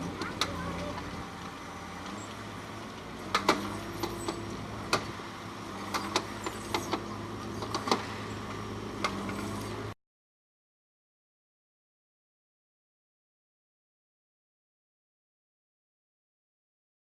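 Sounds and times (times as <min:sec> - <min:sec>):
construction machinery humming: 0:00.0 - 0:10.0
sharp knocks and clanks: 0:03.2 - 0:05.2, 0:05.8 - 0:08.2.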